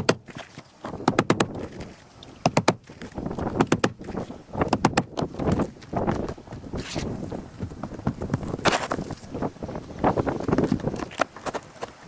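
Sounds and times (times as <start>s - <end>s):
hammer tapping nails into shingles: 0.0s - 1.7s, 2.4s - 5.7s
scraping and shuffling: 0.2s - 12.0s.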